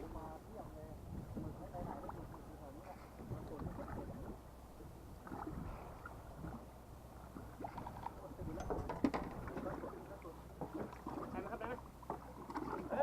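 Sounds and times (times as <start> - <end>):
low steady boat hum: 0.0 - 13.0
water slapping hull: 1.1 - 13.0
small knocks on hull: 7.8 - 9.8.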